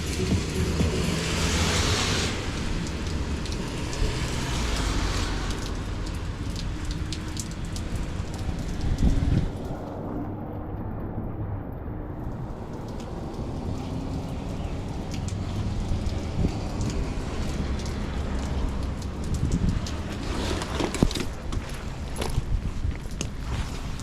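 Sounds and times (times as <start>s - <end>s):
low rumble: 0.0s - 4.7s, 5.6s - 14.4s
steady rain: 0.0s - 10.9s, 12.1s - 24.0s.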